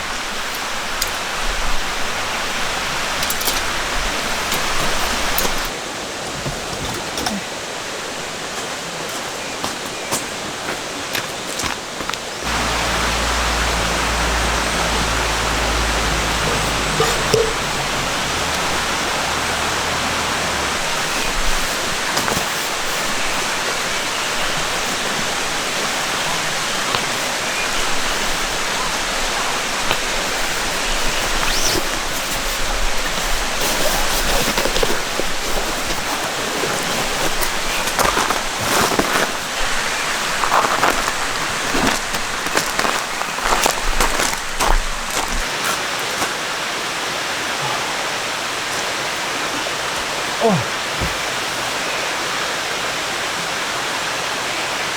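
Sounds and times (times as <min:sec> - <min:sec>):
mountain stream flowing: 0:00.0 - 0:54.9.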